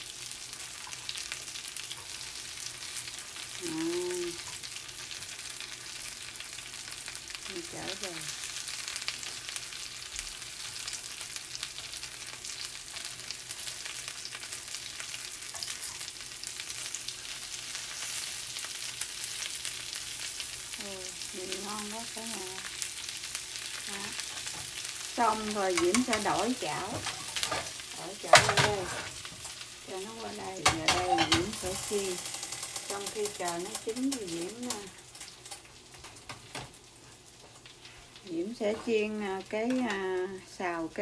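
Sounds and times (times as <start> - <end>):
oysters sizzling in hot oil: 0.0 - 41.0
chopsticks turning food: 23.9 - 35.0.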